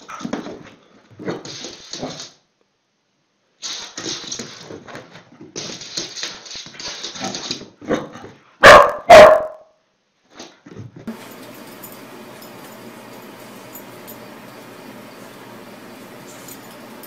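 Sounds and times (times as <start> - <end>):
dog barking: 8.6 - 9.7.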